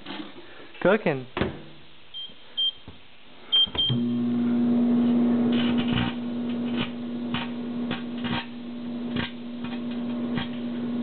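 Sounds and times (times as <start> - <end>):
microwave keypad beeping: 3.6 - 4.1
microwave running hum: 3.8 - 11.0.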